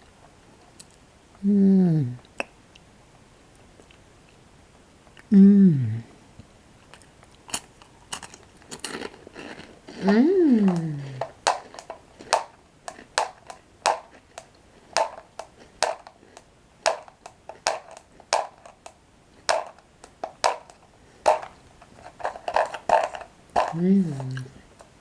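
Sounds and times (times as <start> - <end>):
chewing crunchy bread sticks: 3.5 - 4.4, 6.8 - 25.0.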